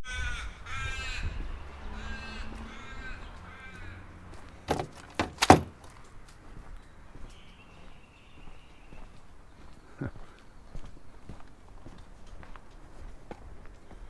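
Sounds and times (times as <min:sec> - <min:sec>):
crow cawing: 0:00.0 - 0:04.2
sharp knocks: 0:04.7 - 0:05.9.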